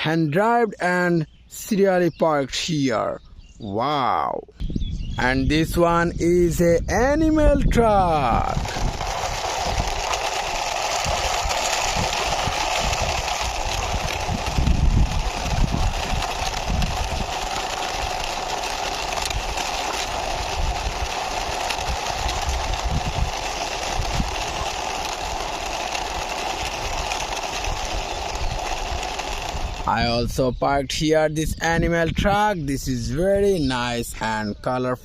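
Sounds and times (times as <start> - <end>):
steady whirring: 4.6 - 33.5
toy truck wheels rolling: 5.6 - 30.6.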